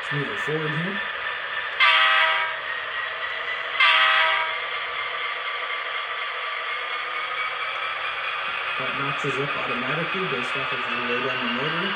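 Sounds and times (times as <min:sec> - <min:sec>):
locomotive horn blasts: 0:01.8 - 0:02.5, 0:03.8 - 0:04.5
diesel engine idling: 0:04.6 - 0:11.9.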